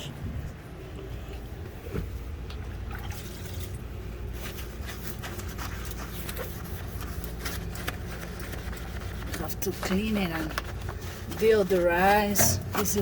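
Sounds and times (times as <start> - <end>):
steady low hum: 0.0 - 13.0
liquid trickling: 2.5 - 6.1.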